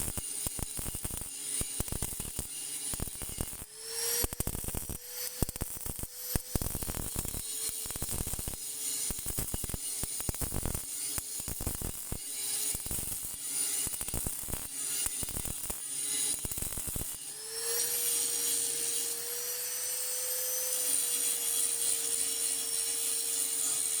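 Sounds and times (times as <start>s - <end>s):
welding arc crackling: 0.0s - 24.0s.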